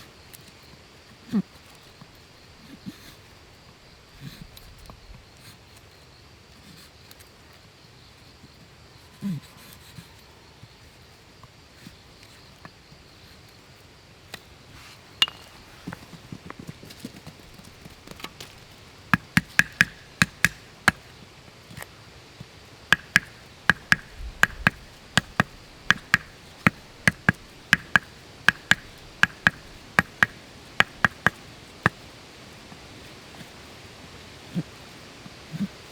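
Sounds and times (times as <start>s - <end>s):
sharp ringing knocks: 15.2s - 15.6s, 19.2s - 21.0s, 22.9s - 31.4s.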